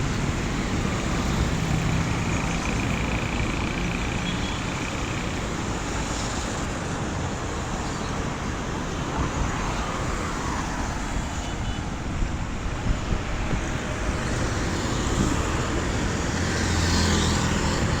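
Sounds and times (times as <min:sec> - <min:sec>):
vehicle engine humming: 0:00.0 - 0:06.4
traffic on wet road: 0:00.0 - 0:18.0.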